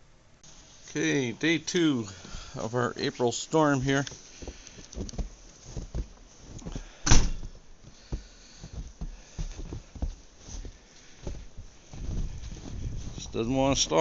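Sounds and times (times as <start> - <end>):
door bang shutting: 7.0 - 7.5
door knocks and clunks: 7.0 - 7.6.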